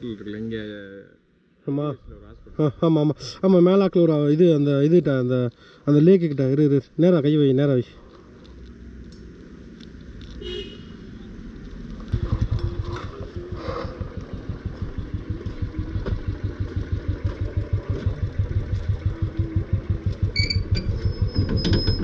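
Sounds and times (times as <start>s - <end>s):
engine hum: 8.0s - 22.0s
motorcycle exhaust beat: 12.1s - 21.6s.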